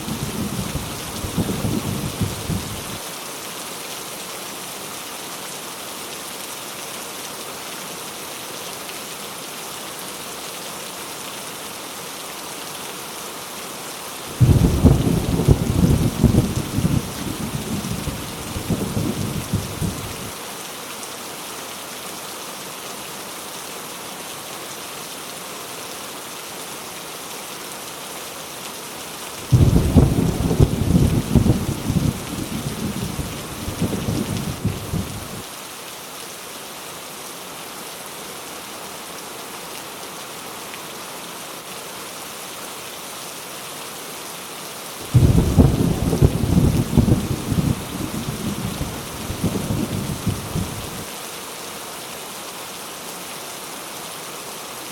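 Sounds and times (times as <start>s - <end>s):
heavy rain falling: 0.0s - 54.9s
thunder rolling: 14.4s - 20.2s, 29.5s - 35.4s, 45.1s - 51.0s.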